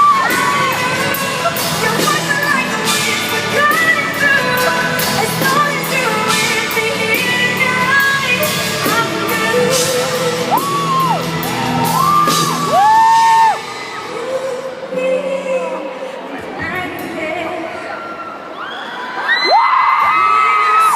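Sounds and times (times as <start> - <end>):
live pop band: 0.0 - 20.9
crowd whooping: 10.4 - 14.6, 17.8 - 20.9.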